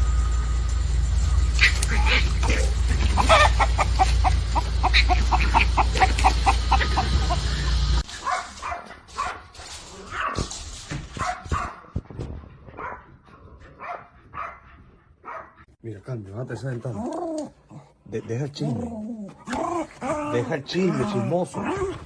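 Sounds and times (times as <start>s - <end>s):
dog barking and whining: 1.5s - 12.0s, 15.2s - 15.6s, 18.6s - 22.0s
dog yipping: 1.6s - 7.5s.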